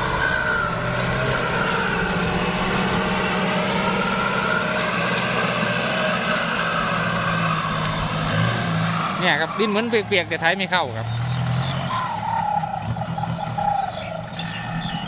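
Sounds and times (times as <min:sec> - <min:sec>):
wavering high whine: 0:00.0 - 0:09.9
tractor diesel engine running: 0:00.0 - 0:15.0.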